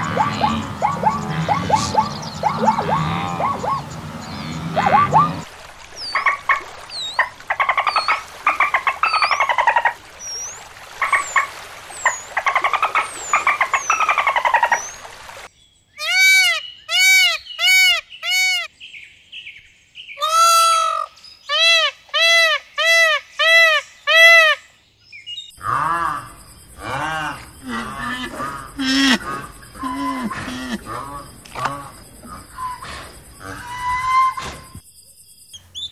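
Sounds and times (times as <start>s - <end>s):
peacock calling: 0.0s - 5.4s, 16.0s - 18.7s, 20.2s - 24.6s, 26.8s - 34.8s
small birds chirping: 0.0s - 5.4s.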